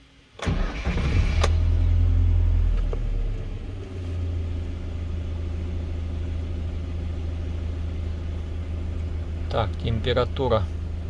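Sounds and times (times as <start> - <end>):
petrol engine idling: 4.0 - 11.0.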